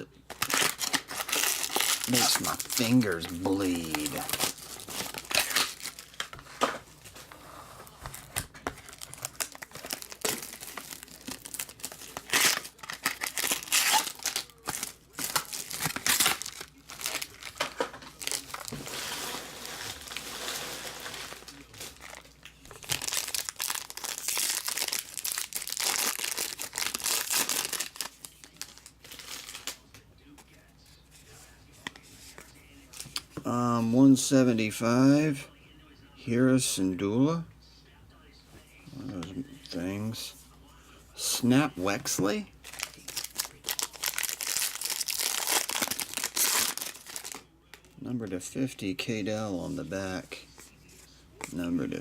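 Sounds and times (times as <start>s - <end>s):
plastic wrap tearing: 0.3s - 6.4s, 8.1s - 29.8s, 42.6s - 47.8s
plastic wrap crinkling: 0.3s - 7.3s, 8.0s - 29.9s, 42.6s - 48.0s.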